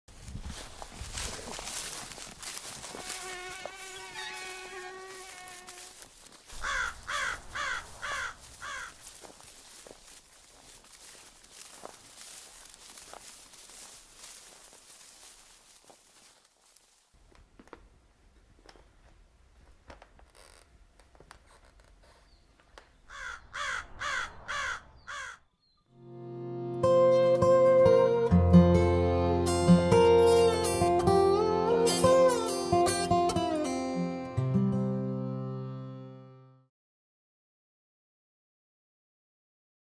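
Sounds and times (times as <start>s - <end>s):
insect-like buzz: 2.8s - 8.9s
short falling calls: 2.9s - 9.4s
bird cawing: 6.5s - 9.4s, 23.1s - 25.5s.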